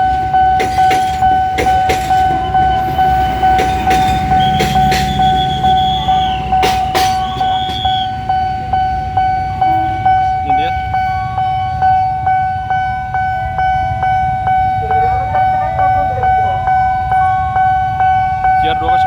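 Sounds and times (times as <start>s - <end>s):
wheels clacking on rail joints: 0.0s - 8.7s
level crossing alarm ringing: 0.0s - 19.0s
train rumble: 0.0s - 19.0s.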